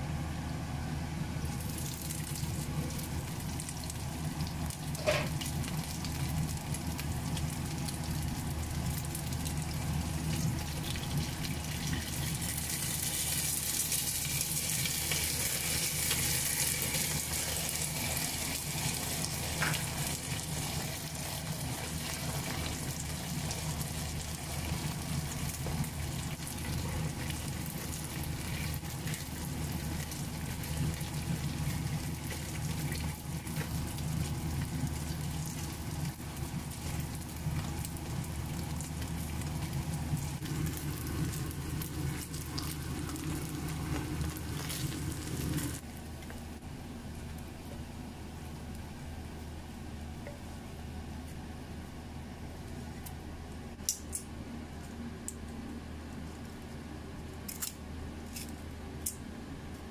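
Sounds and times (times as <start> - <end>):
buns sizzling in oil: 1.4 - 46.6.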